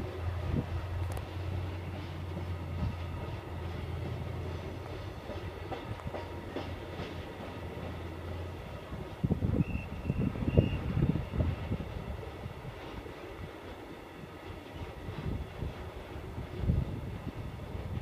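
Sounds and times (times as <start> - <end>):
wheels clicking over rail joints: 0.0 - 10.8, 11.4 - 18.0
distant freight train rumble: 0.0 - 18.0.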